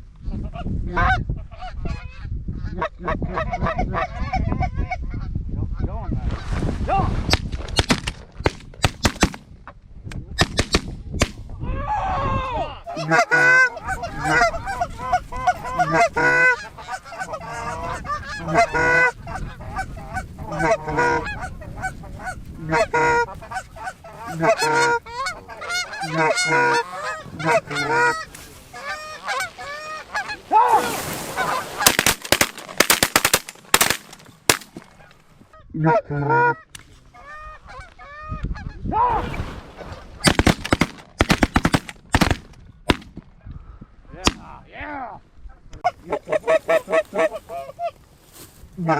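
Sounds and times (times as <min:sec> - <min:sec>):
geese honking and clucking: 0:00.9 - 0:05.9, 0:12.8 - 0:39.4, 0:45.5 - 0:48.1
shotgun blasts: 0:07.3 - 0:09.5, 0:10.4 - 0:11.4, 0:31.8 - 0:35.0, 0:39.1 - 0:43.2, 0:44.2 - 0:44.5.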